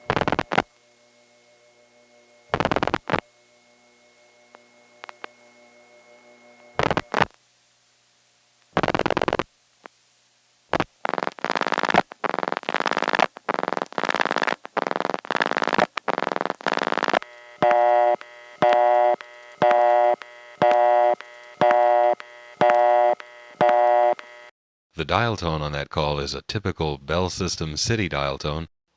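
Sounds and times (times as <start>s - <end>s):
telephone line clicks: 5.0s - 5.3s, 17.6s - 24.3s
telephone busy signal: 17.5s - 24.5s.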